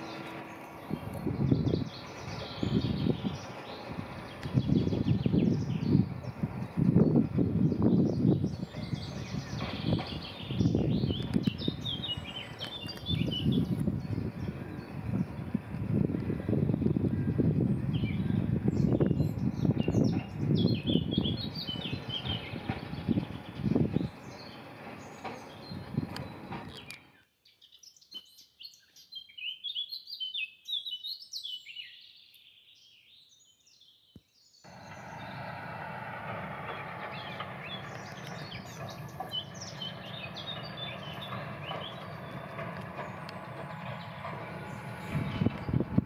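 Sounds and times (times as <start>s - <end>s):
small birds chirping: 0.0s - 35.6s, 36.4s - 46.0s
background rumble: 34.7s - 46.0s.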